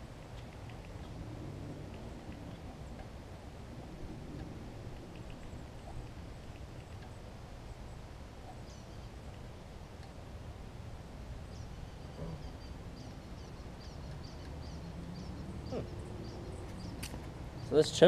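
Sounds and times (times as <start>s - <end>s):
low outdoor rumble: 0.0s - 18.0s
small bird chirping: 11.4s - 17.8s.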